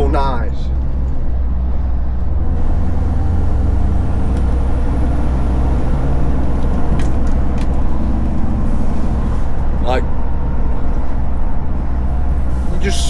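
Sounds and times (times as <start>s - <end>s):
diesel truck engine rumbling: 0.0s - 13.0s.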